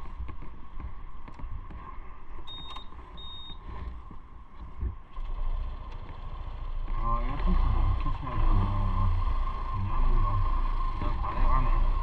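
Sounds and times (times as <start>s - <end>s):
motorcycle low rumble: 0.0s - 12.0s
short high beeps: 2.5s - 3.6s.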